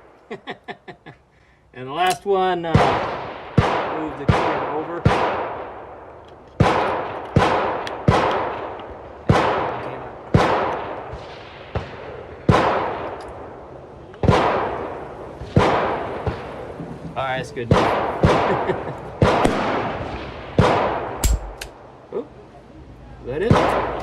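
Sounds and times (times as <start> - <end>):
echoing gunshots: 2.0 - 16.8, 17.6 - 21.8, 23.4 - 24.0.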